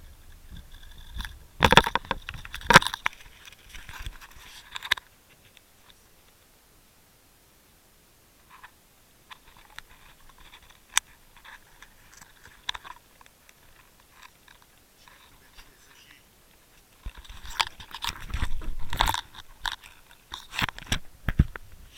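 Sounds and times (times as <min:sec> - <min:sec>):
underwater clicks and crackles: 0:00.5 - 0:06.0, 0:09.3 - 0:15.3, 0:17.0 - 0:21.7.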